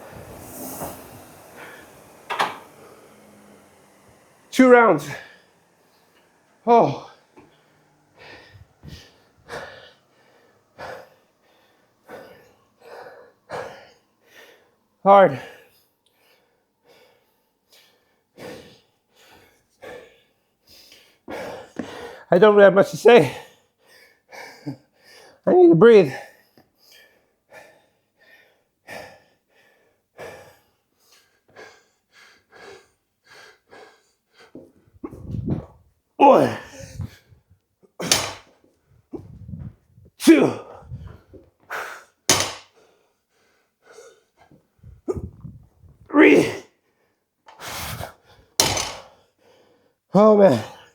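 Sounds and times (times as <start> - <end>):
man breathing hard and fast: 0.0 - 22.3, 26.3 - 35.8, 36.4 - 50.0
man panting heavily: 8.1 - 22.3, 26.8 - 35.3, 36.3 - 38.4.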